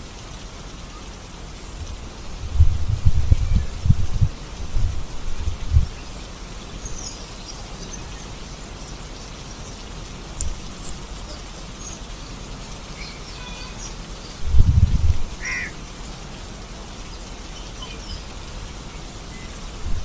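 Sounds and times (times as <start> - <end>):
steady rainfall: 0.0 - 20.0
raindrop ticks: 9.1 - 18.1
bird call: 10.4 - 14.4, 15.4 - 15.8.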